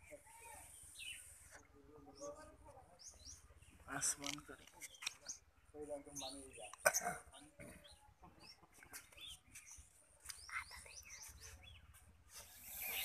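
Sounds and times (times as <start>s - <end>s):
small birds chirping: 0.0s - 13.0s
breathy hiss: 12.4s - 13.0s.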